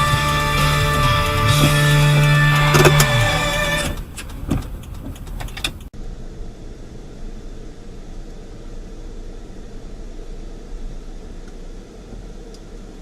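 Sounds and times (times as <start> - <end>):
music: 0.0 - 4.0
car road and engine noise: 0.0 - 13.0
sharp clicks: 0.6 - 5.9.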